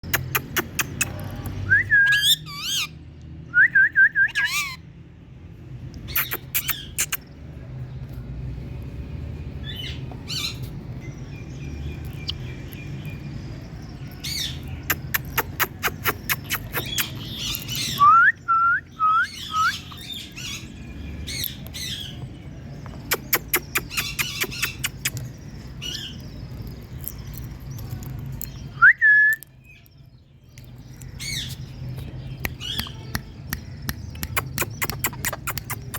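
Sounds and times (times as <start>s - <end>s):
parakeets chattering calls: 0.0s - 3.0s, 4.3s - 4.8s, 6.0s - 7.4s, 14.1s - 18.0s, 19.3s - 22.3s, 22.9s - 28.7s, 30.7s - 35.9s
parakeet whistled notes: 1.7s - 2.9s.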